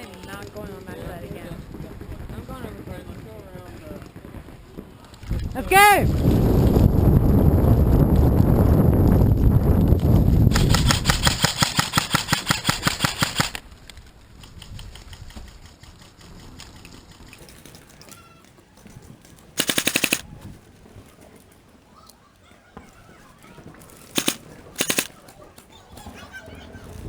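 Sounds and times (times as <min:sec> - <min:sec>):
airsoft gun firing full-auto: 0:19.6 - 0:20.2, 0:24.1 - 0:25.1.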